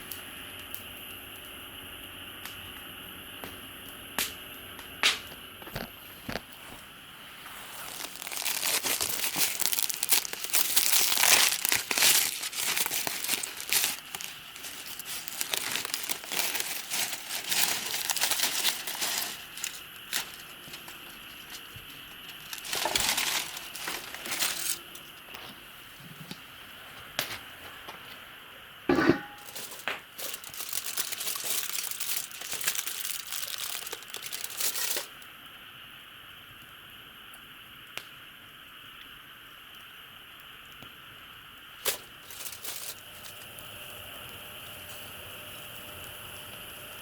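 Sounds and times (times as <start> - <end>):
thin material crinkling: 5.8 - 25.6, 28.9 - 35.2, 41.8 - 43.4.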